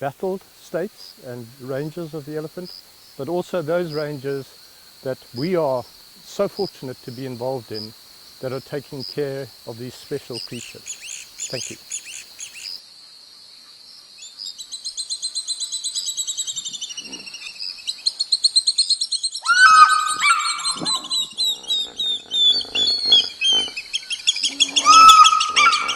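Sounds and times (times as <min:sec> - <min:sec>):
high insect drone: 0:00.0 - 0:25.9
birds trilling: 0:06.4 - 0:12.8, 0:19.4 - 0:25.9
lower whistled bird calls: 0:10.3 - 0:12.8, 0:14.2 - 0:25.9.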